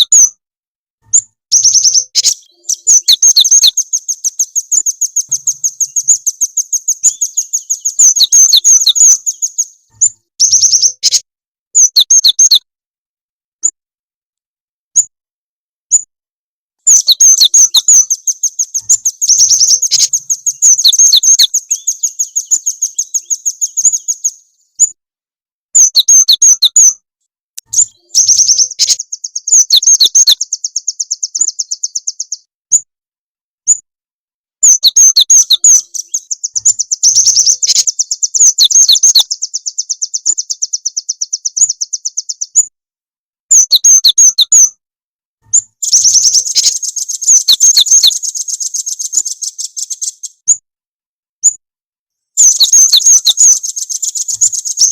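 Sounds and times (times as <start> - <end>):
songbirds chattering trills: 1.1 - 11.2, 11.8 - 12.6, 16.8 - 25.0, 25.8 - 26.9, 27.6 - 32.5, 34.6 - 42.7, 43.5 - 44.7, 45.5 - 50.6, 52.4 - 54.9.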